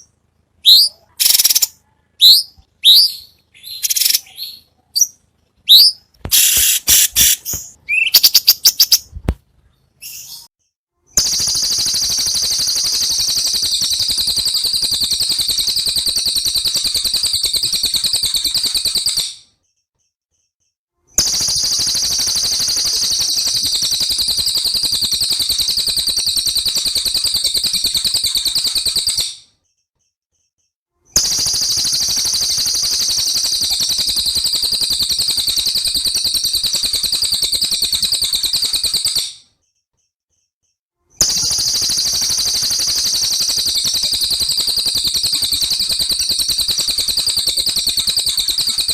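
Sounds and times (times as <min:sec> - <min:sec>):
songbird chirps: 0:00.0 - 0:21.2
songbird high-pitched trill: 0:11.2 - 0:19.2, 0:41.3 - 0:48.9.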